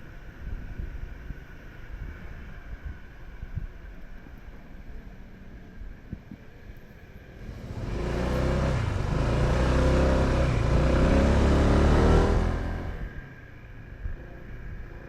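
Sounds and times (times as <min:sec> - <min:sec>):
wind noise: 0:00.0 - 0:15.0
vehicle engine: 0:06.9 - 0:15.0.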